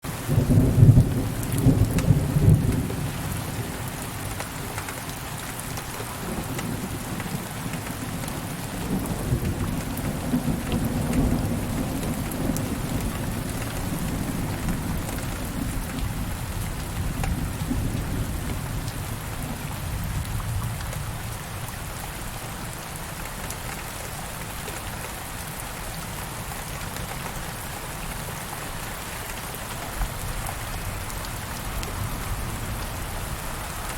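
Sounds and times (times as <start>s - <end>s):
steady rain falling: 0.0s - 33.9s
thunder rumbling: 0.1s - 4.2s, 5.9s - 21.4s.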